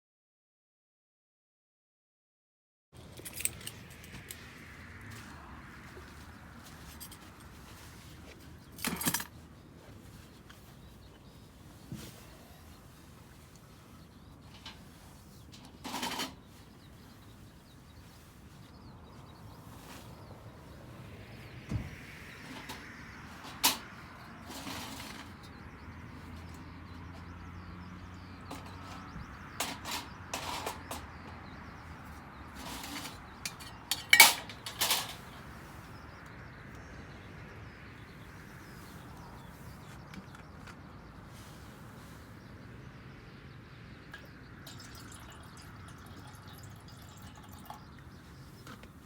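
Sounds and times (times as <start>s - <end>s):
cookware and utensils clinking: 32.7s - 35.3s.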